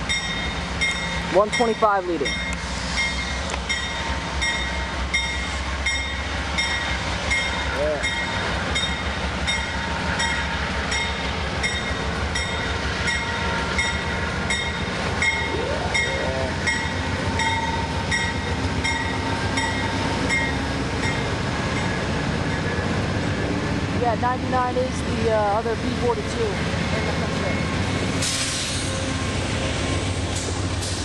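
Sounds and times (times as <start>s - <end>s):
train bell ringing: 0.0s - 22.9s, 26.3s - 27.9s
train rumbling: 0.0s - 31.0s.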